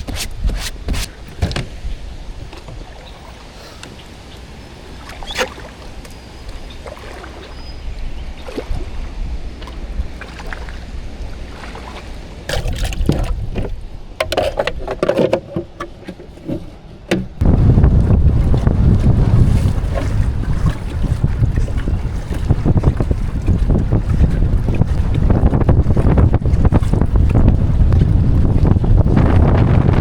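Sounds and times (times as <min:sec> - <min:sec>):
paddle knocking against hull: 0:00.0 - 0:01.8, 0:11.7 - 0:30.0
water splashes: 0:00.0 - 0:14.7, 0:17.3 - 0:30.0
low wind rumble: 0:00.0 - 0:14.9, 0:16.7 - 0:30.0.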